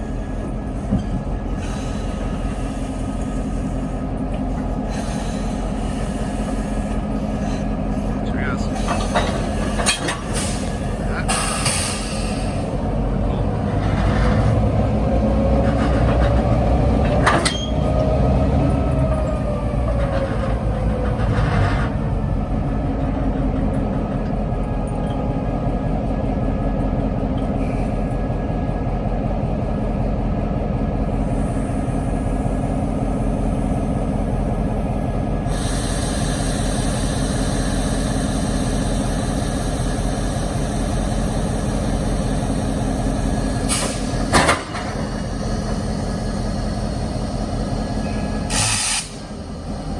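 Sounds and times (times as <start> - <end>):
diesel locomotive engine running: 0.0 - 49.9.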